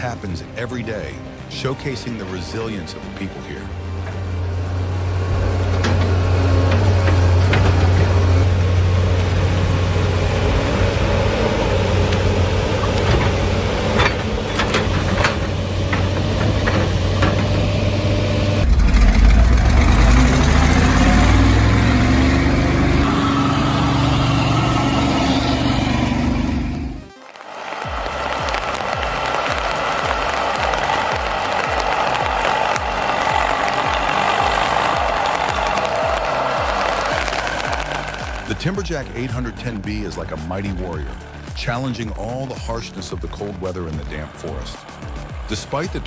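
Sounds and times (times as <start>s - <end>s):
heavy diesel machinery engines: 0.0s - 27.0s
deep engine revving: 3.7s - 27.1s.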